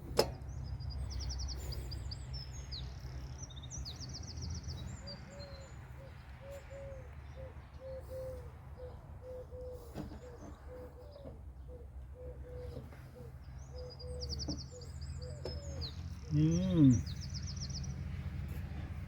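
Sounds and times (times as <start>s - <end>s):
small birds twittering: 0.0s - 19.0s
pigeon cooing: 5.4s - 17.1s.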